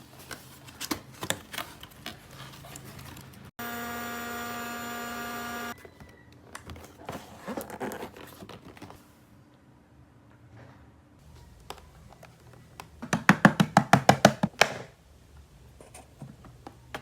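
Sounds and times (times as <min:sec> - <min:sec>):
electronic buzzing tone: 0:03.6 - 0:05.8.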